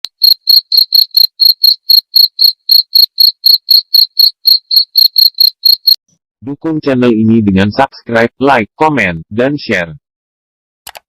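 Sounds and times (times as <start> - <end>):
cricket chirping: 0.1 - 6.0.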